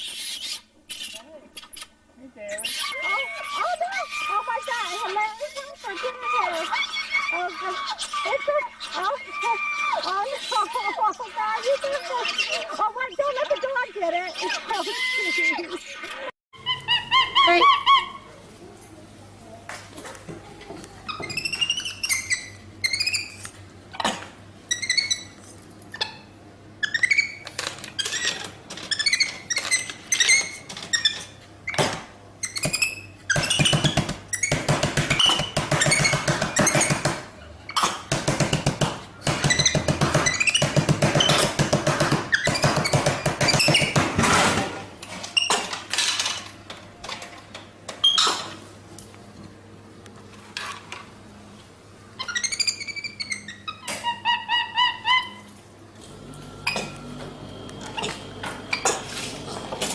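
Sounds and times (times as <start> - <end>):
monkey chattering: 0.0 - 1.9, 2.5 - 18.3, 52.2 - 55.5
monkey squeaking: 0.0 - 18.3, 21.1 - 23.4, 24.7 - 31.8, 32.4 - 38.0, 39.3 - 44.0, 45.3 - 45.7, 52.2 - 55.6.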